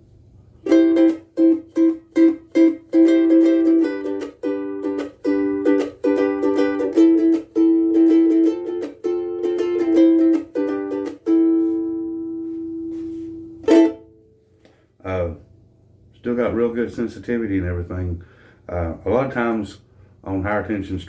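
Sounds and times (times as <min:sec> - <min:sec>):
ukulele chords strummed: 0:00.6 - 0:14.4.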